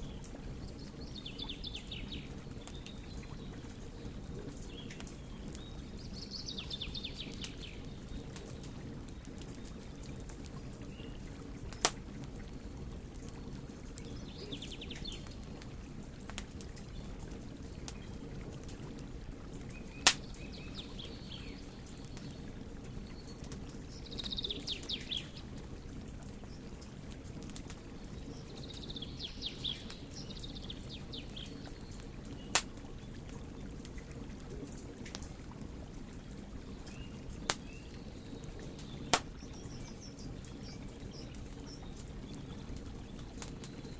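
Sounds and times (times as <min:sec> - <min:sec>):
fire crackling pops: 0:00.0 - 0:43.9
wood fire burning: 0:00.0 - 0:43.9
birds chirping: 0:19.6 - 0:25.4, 0:28.0 - 0:33.2.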